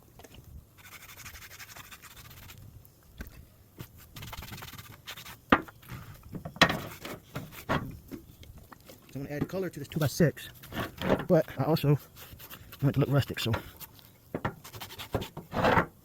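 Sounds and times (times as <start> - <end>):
rag wiping wood board: 4.1 - 8.0.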